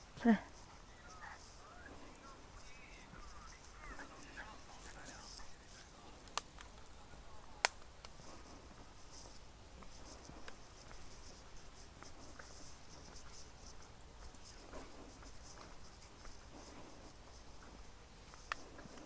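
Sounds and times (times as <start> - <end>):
scratchy rustling: 0.0 - 19.0
sharp clicks: 6.2 - 7.0, 7.6 - 8.2.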